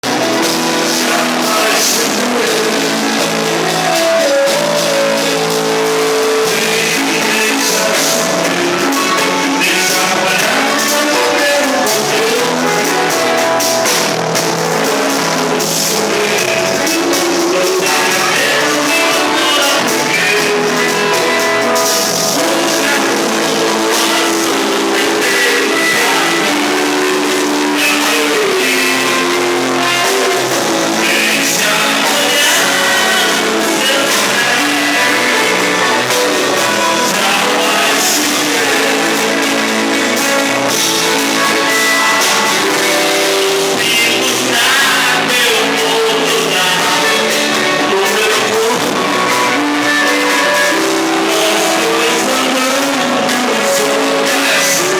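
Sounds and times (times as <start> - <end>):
person singing: 0.0 - 54.9
rock band playing live: 0.0 - 54.9.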